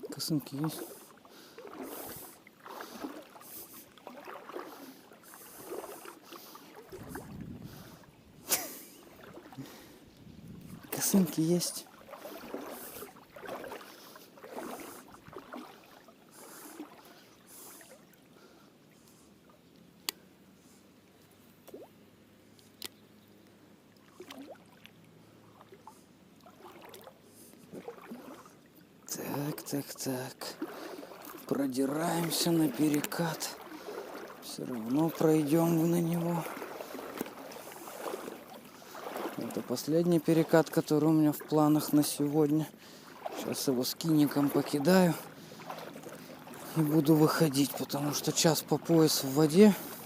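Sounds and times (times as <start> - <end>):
small splashes: 0.0 - 20.2, 21.6 - 22.0, 23.8 - 50.0
water sloshing around legs: 0.0 - 20.2, 20.8 - 50.0
wind rumble on microphone: 6.9 - 8.5, 10.1 - 11.0.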